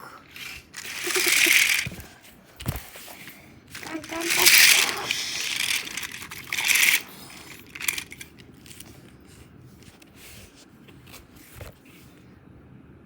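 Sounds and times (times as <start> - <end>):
toy trains clattering: 0.2 - 9.1.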